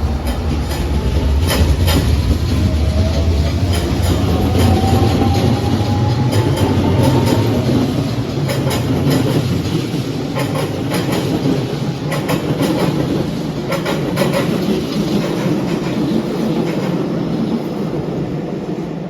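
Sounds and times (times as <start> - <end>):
train rumbling on rails: 0.0 - 19.0
wheels clicking over rail joints: 0.1 - 17.0.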